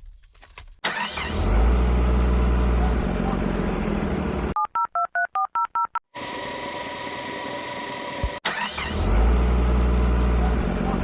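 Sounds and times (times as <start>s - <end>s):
engine running: 0.9s - 4.6s, 7.7s - 11.0s.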